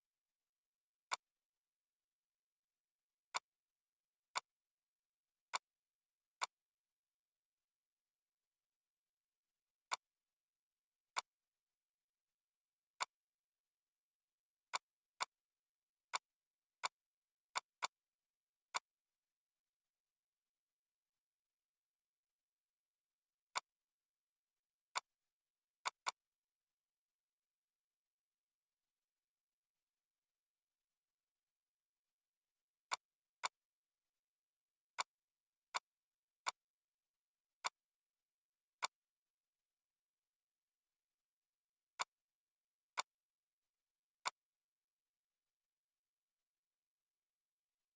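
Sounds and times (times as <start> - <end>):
computer mouse clicks: 1.1 - 1.3, 9.9 - 10.1, 23.5 - 23.7, 32.9 - 33.6, 42.0 - 42.2.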